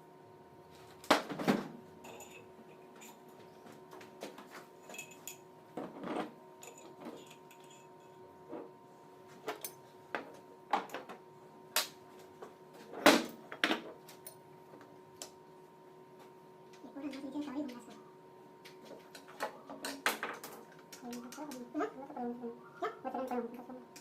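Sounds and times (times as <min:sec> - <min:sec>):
faint steady hum: 0:00.0 - 0:24.0
metal tools clinking and knocking: 0:02.0 - 0:03.2, 0:04.8 - 0:05.4, 0:06.6 - 0:08.2.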